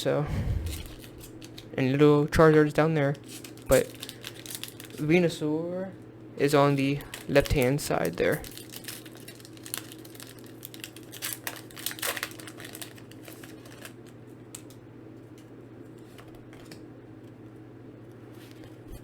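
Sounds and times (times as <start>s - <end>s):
steady low hum: 0.0s - 2.0s
foil pack crinkling and tearing: 3.2s - 5.1s, 6.8s - 14.8s.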